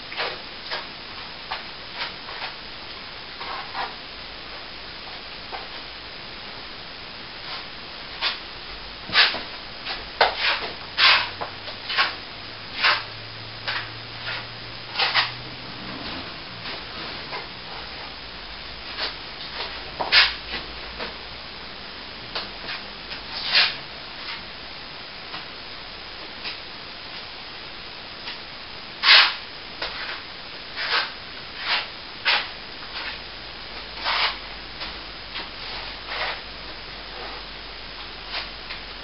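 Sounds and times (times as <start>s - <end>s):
steady hiss: 0.0s - 39.0s
plastering tool scraping wall: 9.1s - 18.1s, 22.6s - 24.4s, 29.0s - 30.2s, 30.8s - 33.2s, 34.0s - 34.5s, 35.4s - 36.4s.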